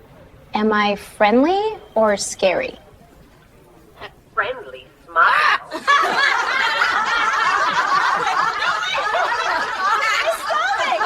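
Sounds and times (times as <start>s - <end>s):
people laughing: 5.2s - 11.0s.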